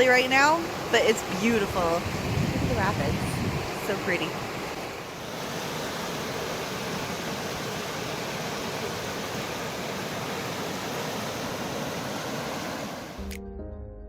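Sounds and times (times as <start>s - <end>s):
river rapids rushing: 3.6s - 13.2s.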